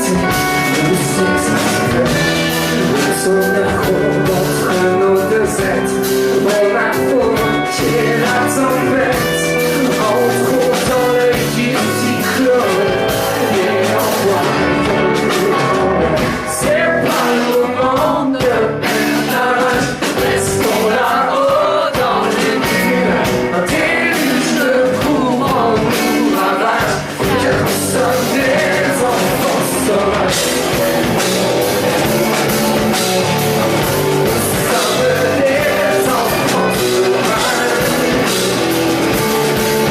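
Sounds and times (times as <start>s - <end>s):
man singing: 0.0s - 39.9s
rock band playing: 0.0s - 39.9s.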